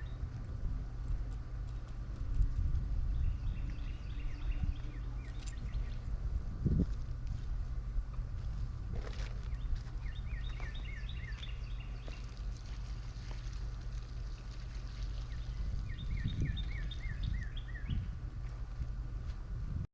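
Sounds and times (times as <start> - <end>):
steady low rumble: 0.0 - 19.9
songbird singing repeated notes: 3.1 - 6.0, 9.4 - 12.4, 15.1 - 18.1.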